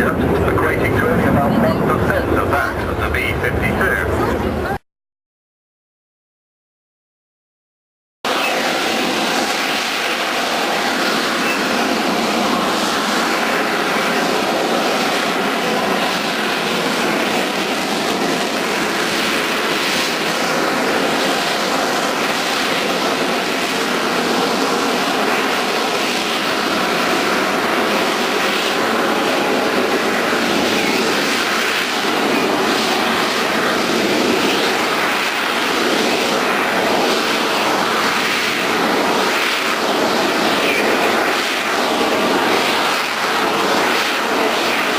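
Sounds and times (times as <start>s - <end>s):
military aircraft engine: 0.0s - 4.8s, 8.3s - 44.9s.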